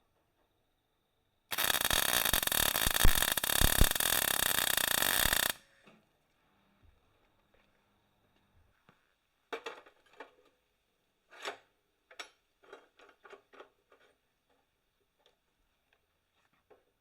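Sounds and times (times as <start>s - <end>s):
short metal strokes: 1.5s - 5.6s.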